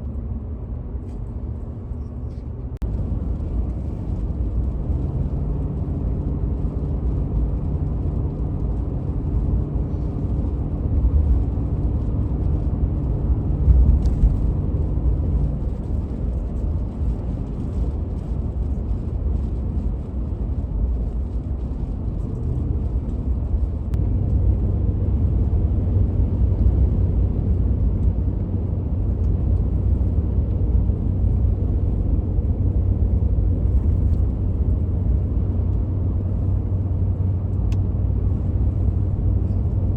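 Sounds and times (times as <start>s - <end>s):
pitched engine hum: 0.0s - 39.9s
vehicle engine and road noise: 0.0s - 39.9s.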